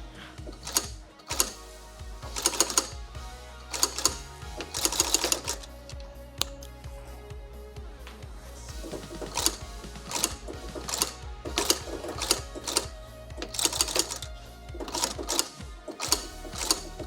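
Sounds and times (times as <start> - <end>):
background music: 0.0 - 17.0
sewing machine stitching: 0.5 - 1.6, 2.2 - 3.1, 3.7 - 6.5, 8.8 - 17.0.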